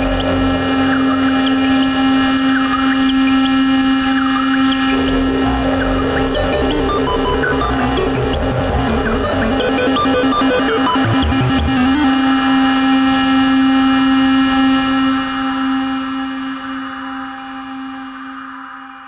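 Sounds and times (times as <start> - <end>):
held synth note: 0.0 - 12.6
sequenced synth pattern: 0.0 - 13.0.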